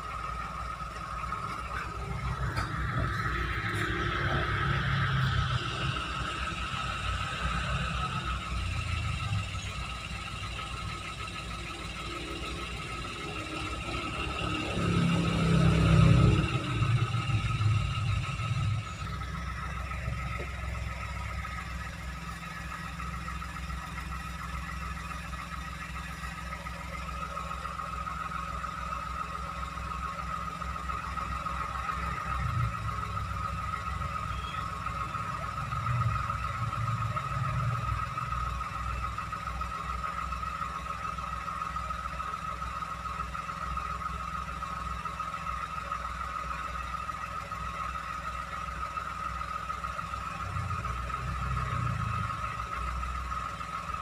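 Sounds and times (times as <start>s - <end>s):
car engine idling: 0.0s - 54.0s
high engine whine: 0.0s - 54.0s.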